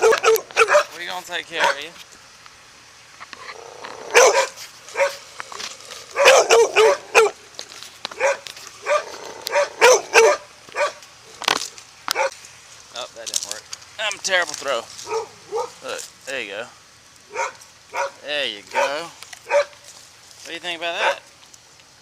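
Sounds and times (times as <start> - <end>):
dog barking: 0.0 - 1.0, 1.6 - 1.9, 4.0 - 5.2, 6.1 - 7.4, 8.2 - 11.0, 12.1 - 12.3, 15.0 - 15.8, 17.3 - 19.8, 21.0 - 21.2.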